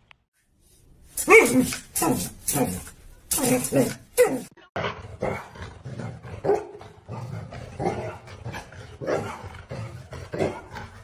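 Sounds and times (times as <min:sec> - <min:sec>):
dog barking: 0:06.4 - 0:08.2, 0:09.0 - 0:09.5.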